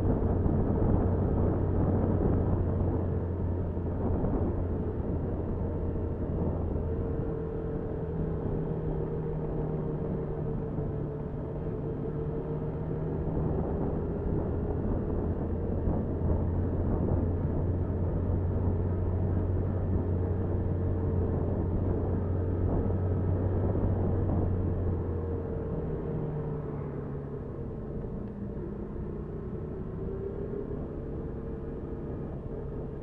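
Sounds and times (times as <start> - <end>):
wind noise: 0.0 - 7.7, 12.9 - 26.6
road noise: 0.0 - 33.0.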